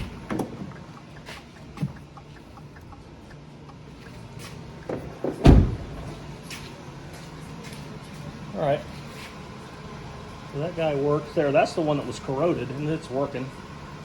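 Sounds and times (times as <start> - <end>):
turn-signal flasher ticking: 0.0 - 4.9
steady low hum: 0.0 - 14.0
heavy loud thump: 4.9 - 6.2.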